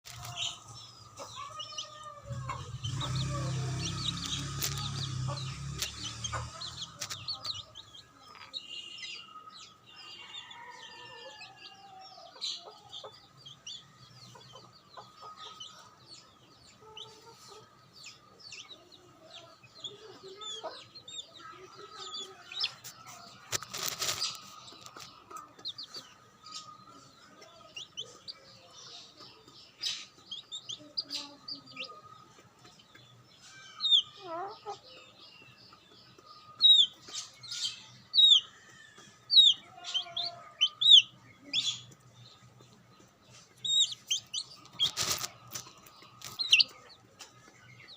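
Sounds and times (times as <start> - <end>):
baby chicks peeping: 0.0 - 47.9
rustling: 23.3 - 25.1, 43.4 - 46.7.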